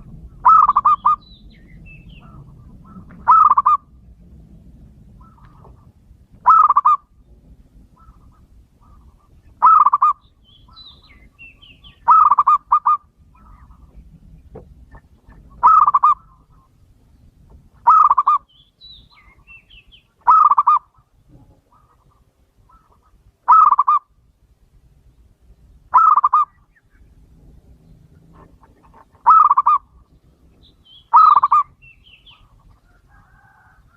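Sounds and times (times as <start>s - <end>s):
dove cooing: 0.0s - 1.2s, 2.1s - 4.0s, 5.1s - 7.1s, 7.9s - 11.2s, 11.8s - 14.1s, 14.9s - 16.7s, 17.8s - 18.5s, 20.2s - 24.1s, 25.9s - 26.6s, 27.9s - 30.0s, 31.1s - 33.9s
small birds chirping: 0.1s - 3.9s, 5.1s - 33.3s.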